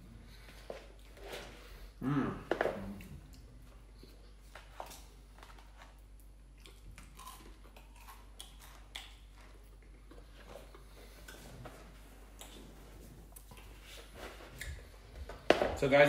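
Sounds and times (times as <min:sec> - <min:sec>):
person chewing: 0:02.4 - 0:15.1.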